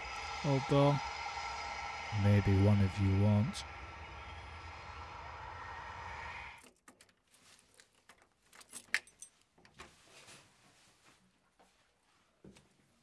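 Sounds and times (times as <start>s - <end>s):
car engine running: 0.0s - 6.6s
keys jangling: 7.0s - 9.4s.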